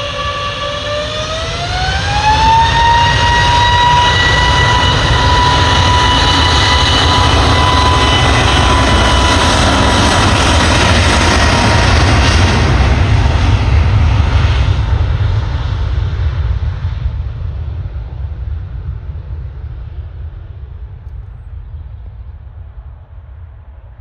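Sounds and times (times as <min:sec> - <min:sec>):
jet engines spooling up: 0:00.0 - 0:16.0.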